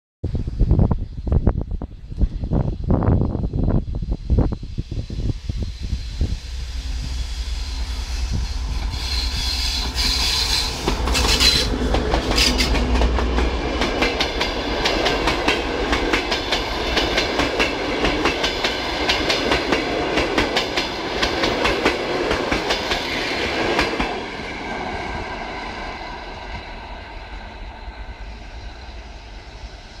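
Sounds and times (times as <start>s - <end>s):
diesel locomotive engine hum: 0.3s - 30.0s
train wheels clickety-clack: 8.4s - 24.8s.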